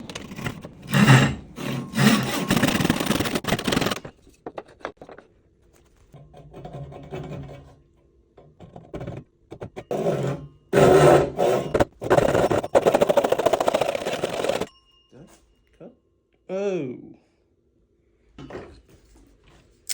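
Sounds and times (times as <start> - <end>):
hand tool scraping wood: 0.0 - 5.0, 8.9 - 14.7.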